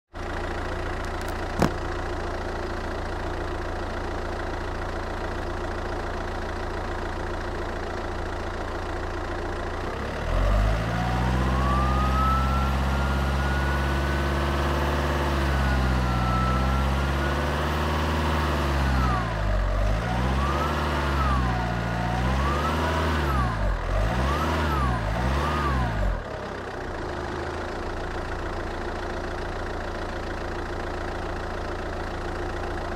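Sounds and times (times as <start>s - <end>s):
diesel engine idling and revving: 0.1s - 32.9s
turbocharger whistle: 11.1s - 17.8s.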